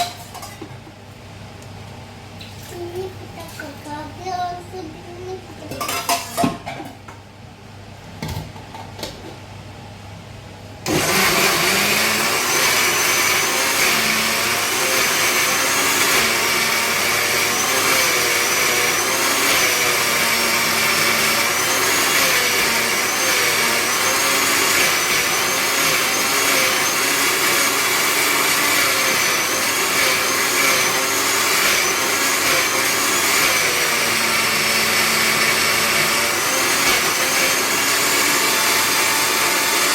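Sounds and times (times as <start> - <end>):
electric mixer grinder running: 10.9 - 39.9.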